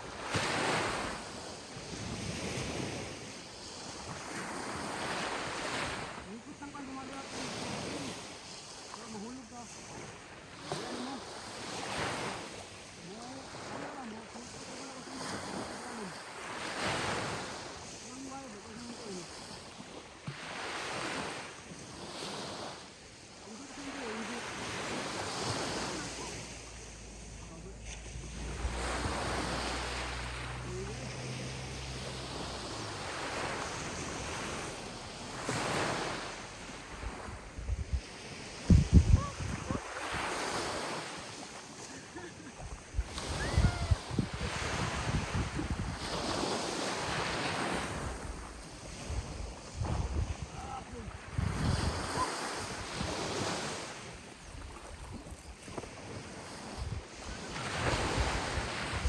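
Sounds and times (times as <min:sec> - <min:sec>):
sea waves washing onto shore: 0:00.0 - 0:59.0
wind on microphone: 0:24.8 - 0:41.3, 0:42.5 - 0:59.0.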